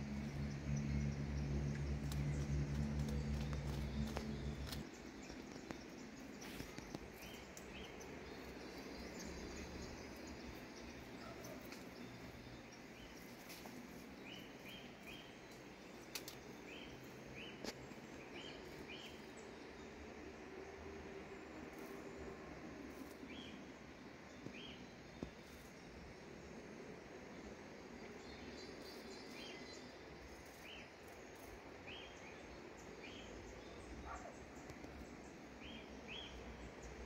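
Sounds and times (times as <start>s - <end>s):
outdoor background noise: 0.0s - 37.0s
bird calls: 34.0s - 34.4s.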